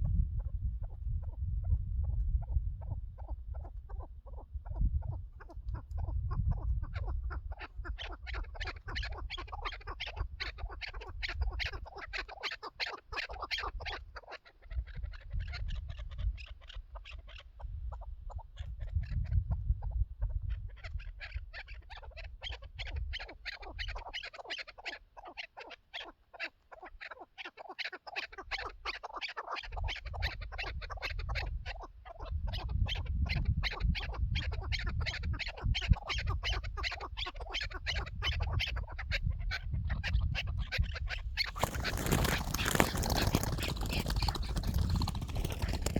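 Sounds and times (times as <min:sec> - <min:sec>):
partridge clucking calls: 0:02.0 - 0:45.9.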